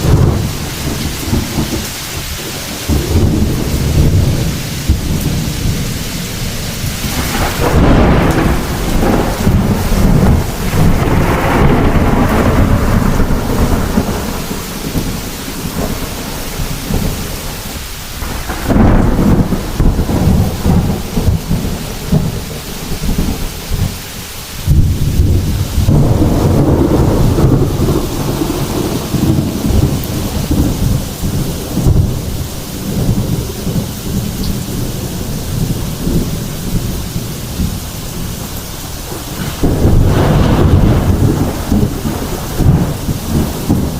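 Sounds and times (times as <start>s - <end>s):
thunder rolling: 0.0s - 24.0s, 24.6s - 43.9s
steady rain: 0.0s - 43.9s.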